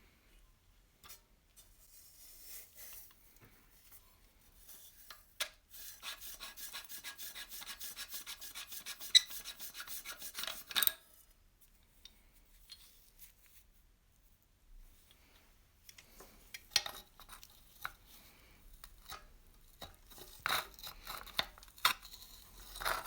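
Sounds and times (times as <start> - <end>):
filing on rusty metal: 5.7 - 10.7.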